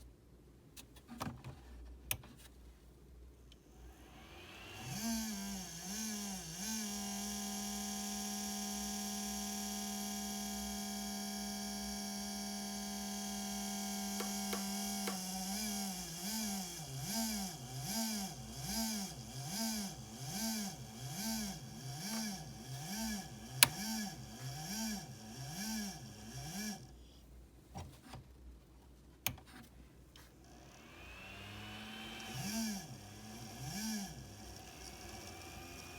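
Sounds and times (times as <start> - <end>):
cooling fan whirring: 12.9 - 27.0, 30.5 - 35.9.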